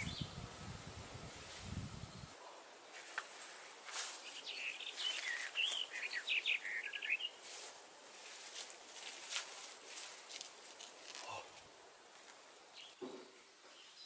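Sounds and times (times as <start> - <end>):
songbird warbling: 4.3 - 7.4
short rustling: 7.4 - 12.4.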